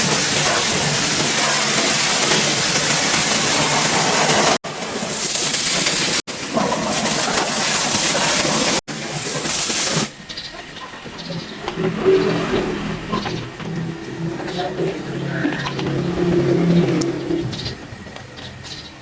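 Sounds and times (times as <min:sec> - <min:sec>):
pressure washer spraying: 0:00.0 - 0:10.3.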